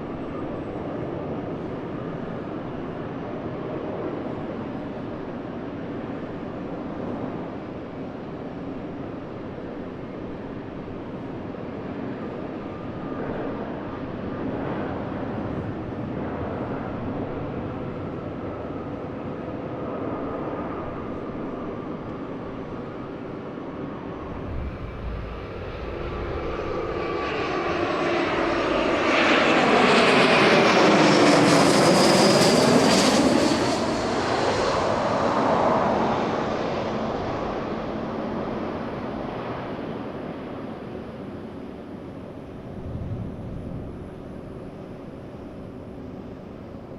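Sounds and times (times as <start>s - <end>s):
jet airliner passing: 22.6s - 46.9s.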